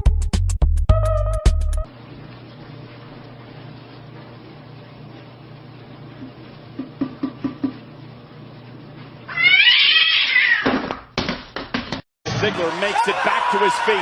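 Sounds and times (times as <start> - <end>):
cat yowling: 9.3 - 10.7.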